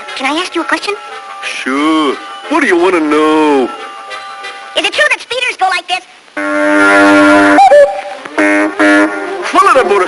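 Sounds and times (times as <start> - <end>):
cartoon horn blasts: 6.4 - 10.0.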